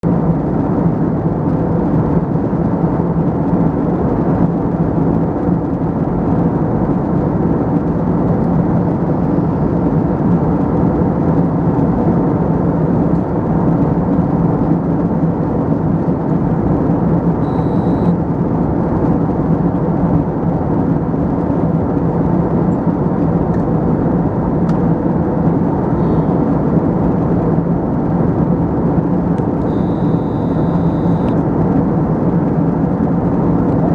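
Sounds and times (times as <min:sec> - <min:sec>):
jet engines droning: 0:00.0 - 0:33.9
low hum: 0:00.0 - 0:33.9.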